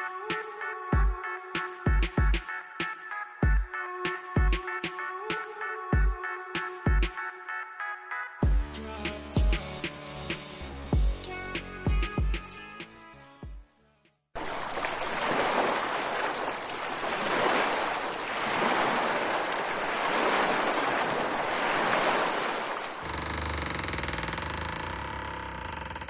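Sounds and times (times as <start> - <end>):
ocean waves washing in: 14.4 - 23.1.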